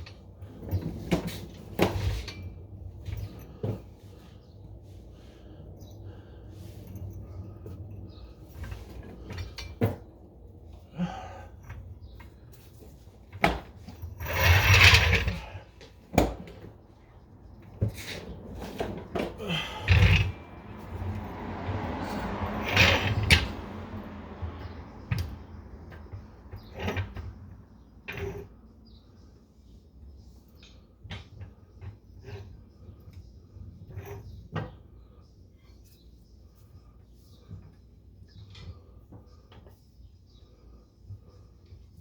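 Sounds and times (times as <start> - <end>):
rustling and scraping bursts: 0.0 - 24.8.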